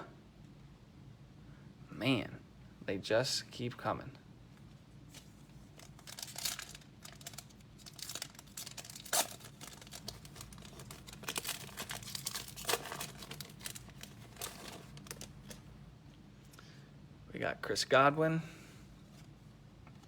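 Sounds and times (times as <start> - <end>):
plastic packaging crinkling: 5.1 - 15.7
trading cards being handled: 5.1 - 15.7.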